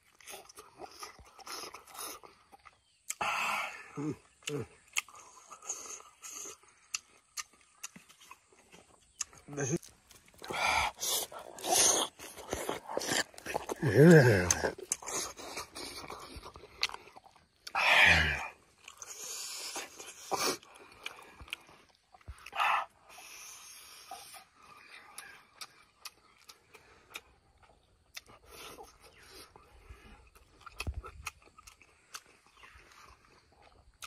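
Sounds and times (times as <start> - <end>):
wet chewing and lip-smacking: 0.0 - 3.2, 4.2 - 17.8, 18.6 - 34.0
mouth clicks: 9.1 - 29.6
man grunting: 13.8 - 14.8.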